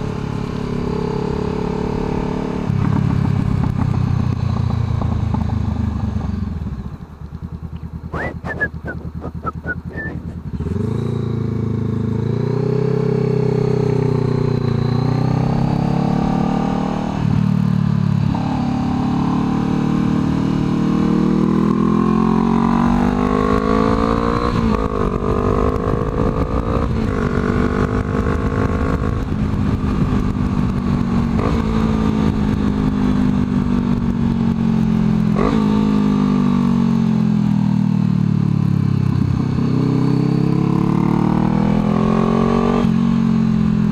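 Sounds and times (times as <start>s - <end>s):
motorcycle engine accelerating: 0.0s - 43.9s
gear changes: 7.2s - 10.9s.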